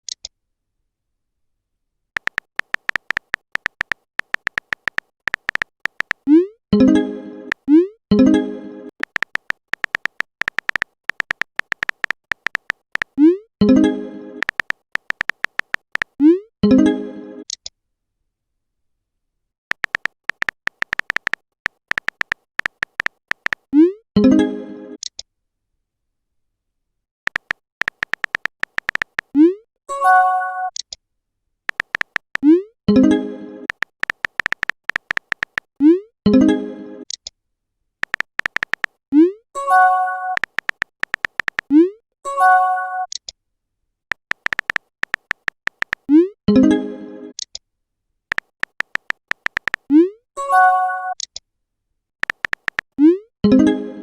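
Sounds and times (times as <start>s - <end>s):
phone keyboard typing clicks: 2.2s - 6.3s, 7.5s - 7.7s, 9.0s - 13.3s, 14.4s - 16.2s, 19.7s - 23.8s, 27.3s - 29.4s, 31.7s - 32.6s, 33.7s - 35.7s, 38.0s - 39.0s, 40.3s - 41.8s, 44.1s - 46.2s, 48.3s - 50.0s, 52.2s - 53.0s.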